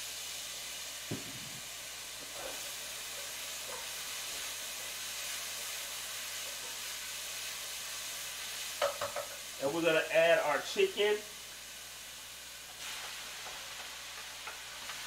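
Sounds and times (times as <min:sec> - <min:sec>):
onions sizzling in a pan: 0:00.0 - 0:15.0
brief knock: 0:01.1 - 0:01.6.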